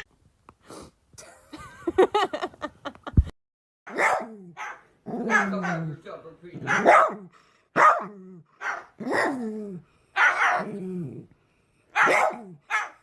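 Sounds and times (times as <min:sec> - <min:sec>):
dog barking: 0:03.9 - 0:06.0, 0:06.6 - 0:09.4, 0:10.2 - 0:10.8, 0:11.9 - 0:13.0.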